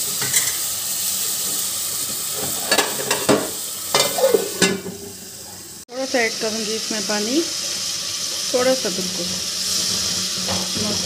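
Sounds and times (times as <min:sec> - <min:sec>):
onions and tomatoes sizzling in oil: 0:00.0 - 0:11.0
metal spoon scraping a pot: 0:02.4 - 0:04.9.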